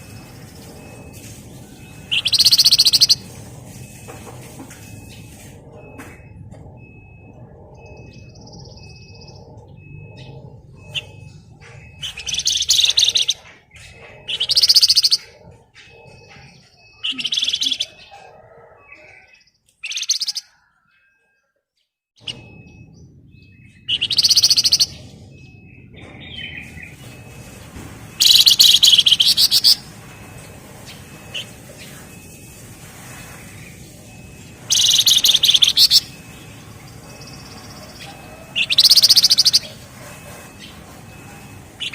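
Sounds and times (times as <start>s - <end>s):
bird rattling trills: 0.0s - 5.5s, 8.0s - 18.2s, 23.8s - 25.0s, 26.6s - 41.9s
faint high peep: 0.0s - 21.6s, 22.2s - 41.9s.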